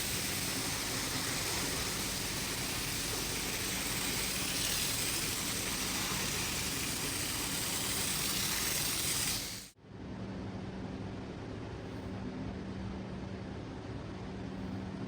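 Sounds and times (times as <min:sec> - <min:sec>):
rushing hiss: 0:00.0 - 0:09.8.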